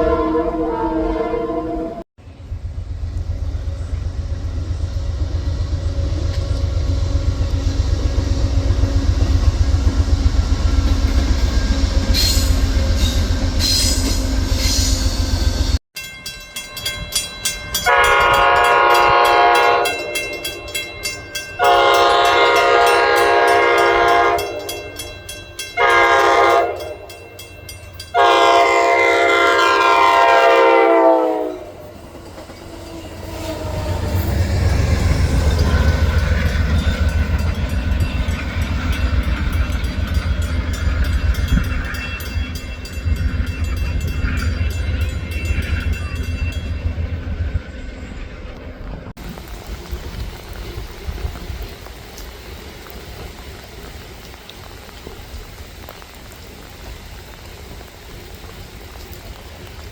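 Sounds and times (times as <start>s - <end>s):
multi-tone train horn: 0.0s - 2.0s, 17.8s - 27.4s, 28.0s - 32.1s
train rumbling by: 0.0s - 59.9s.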